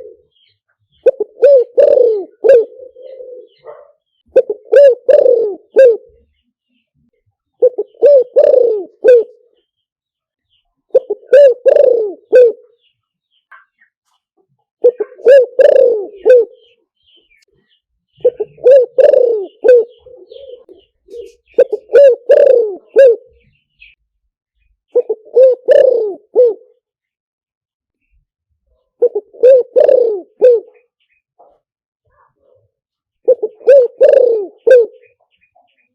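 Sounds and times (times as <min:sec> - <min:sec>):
dove cooing: 0:00.0 - 0:06.4, 0:07.6 - 0:09.6, 0:10.9 - 0:12.8, 0:14.8 - 0:16.8, 0:18.2 - 0:23.9, 0:24.9 - 0:26.8, 0:28.8 - 0:31.5, 0:33.2 - 0:35.4.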